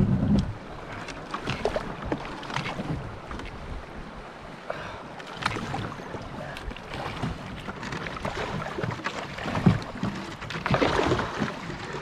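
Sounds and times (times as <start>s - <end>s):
wind rumbling on microphone: 0.0s - 4.6s
water splashing around canoe: 0.0s - 12.0s.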